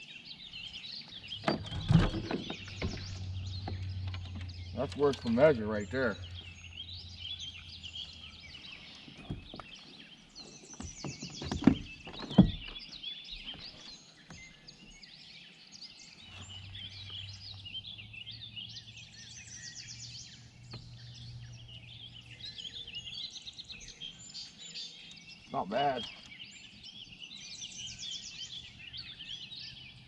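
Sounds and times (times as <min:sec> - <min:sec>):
songbirds chirping and trilling: 0:00.0 - 0:30.0
sharp knocks: 0:10.8 - 0:12.8.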